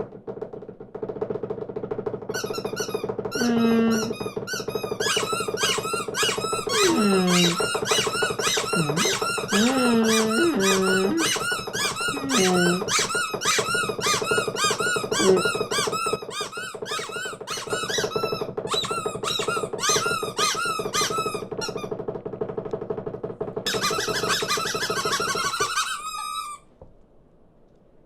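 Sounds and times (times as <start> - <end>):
cartoon birds chirping: 6.3 - 11.4, 12.1 - 13.0.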